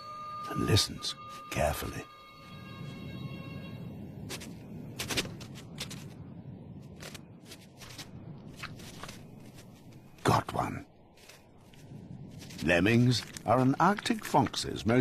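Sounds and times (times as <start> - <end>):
paws crunching on snow: 11.1 - 15.0.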